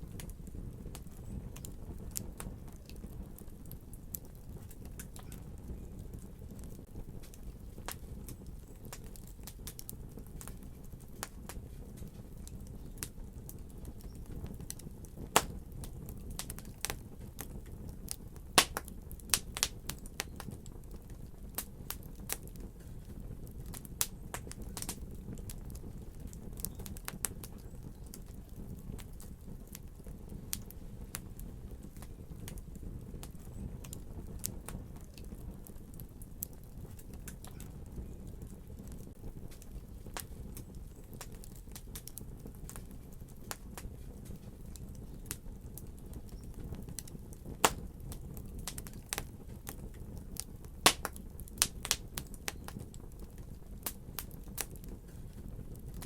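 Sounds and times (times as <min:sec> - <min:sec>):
fire crackling and popping: 0:00.0 - 0:56.0
low fire rumble: 0:00.0 - 0:56.0.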